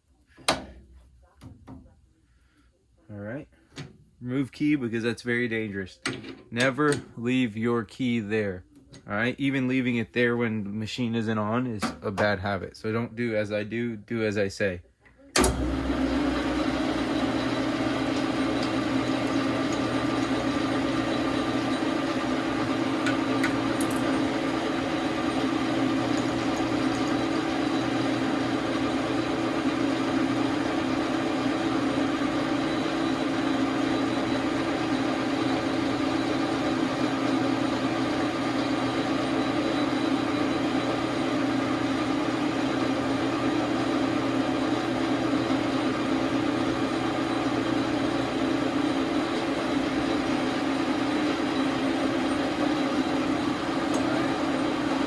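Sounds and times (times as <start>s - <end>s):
lathe running: 15.4s - 55.0s.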